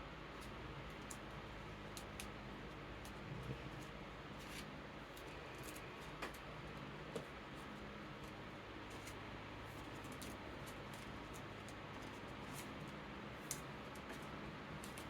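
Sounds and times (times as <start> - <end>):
electric fan hiss: 0.0 - 15.0
playing cards clicking and rustling: 3.0 - 6.5, 9.8 - 15.0.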